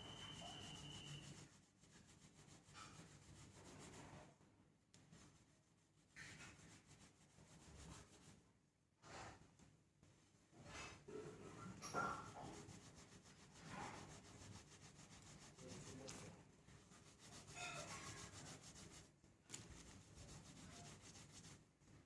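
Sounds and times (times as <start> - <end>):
towel rubbing wet hair: 0.0 - 4.2, 5.2 - 8.4, 11.7 - 21.6.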